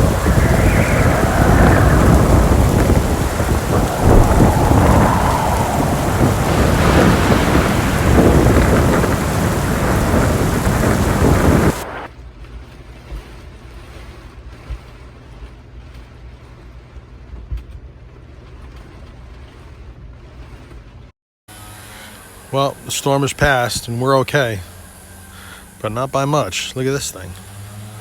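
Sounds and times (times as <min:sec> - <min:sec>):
deep thunder rumbling: 0:00.0 - 0:12.1
heavy rain: 0:00.0 - 0:12.1.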